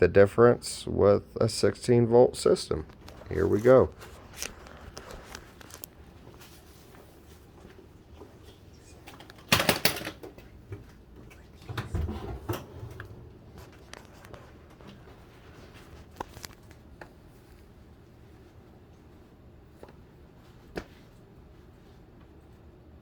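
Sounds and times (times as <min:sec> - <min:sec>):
phone handling rustling and clicks: 0:02.9 - 0:06.0, 0:16.1 - 0:17.1.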